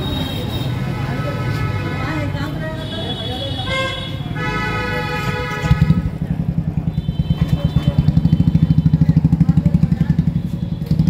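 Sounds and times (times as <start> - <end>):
motorcycle engine idling: 2.9 - 11.0.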